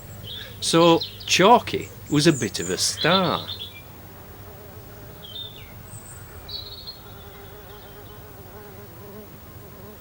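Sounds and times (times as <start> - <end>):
high bird chirps: 2.1 - 3.8
flying insect buzzing: 2.7 - 10.0.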